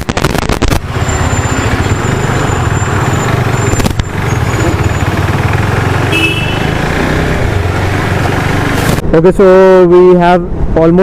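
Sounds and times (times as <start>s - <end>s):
motorcycle engine running: 0.8s - 8.9s.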